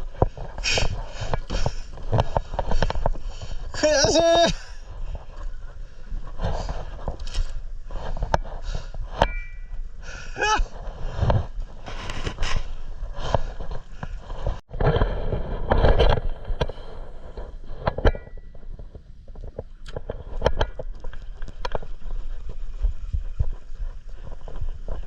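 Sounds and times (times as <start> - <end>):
wind: 0.0 - 25.0
knocks and clatters of gear: 11.2 - 25.0
water: 19.6 - 25.0.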